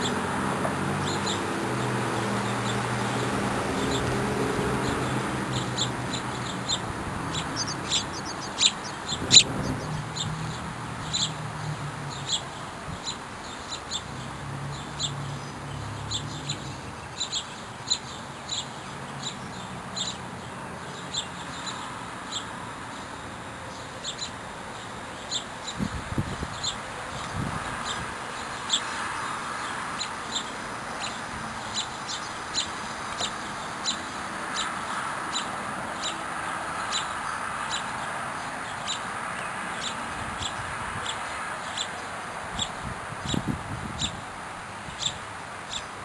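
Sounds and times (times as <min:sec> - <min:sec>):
other bird calls: 0:01.0 - 0:11.4
small bird chirping: 0:04.8 - 0:14.2, 0:14.8 - 0:20.3, 0:25.2 - 0:36.2.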